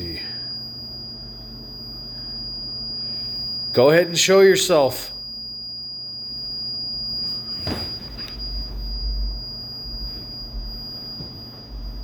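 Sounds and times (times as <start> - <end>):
low electrical hum: 0.0 - 12.0
high-pitched electronic tone: 7.2 - 12.0.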